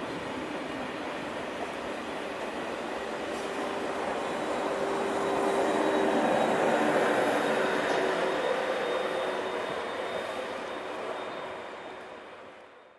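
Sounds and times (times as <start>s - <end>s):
electric train running past: 0.0s - 12.9s.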